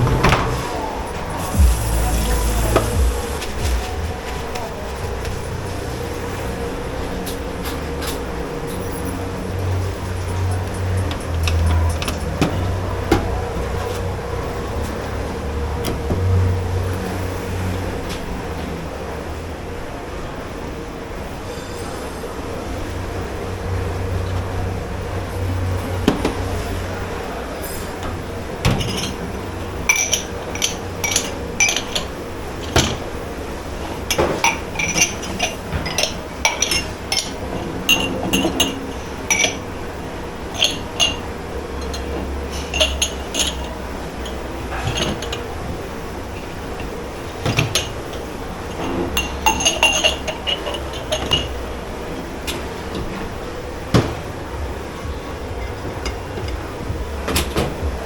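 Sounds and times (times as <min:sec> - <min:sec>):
steady low hum: 0:00.0 - 0:58.0
glasses and crockery clinking: 0:07.3 - 0:17.2, 0:25.7 - 0:57.8.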